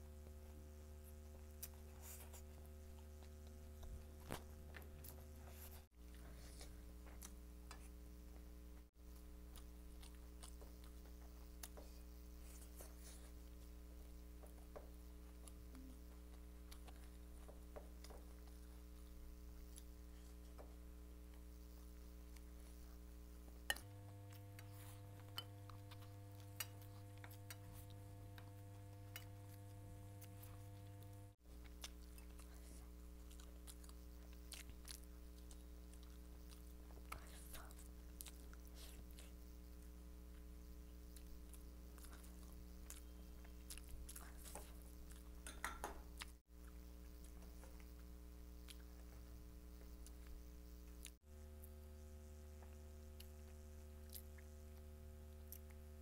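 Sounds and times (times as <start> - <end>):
low electrical hum: 0.0 - 56.0
chewing and mouth clicks: 9.1 - 21.4, 23.7 - 51.8, 52.6 - 55.8.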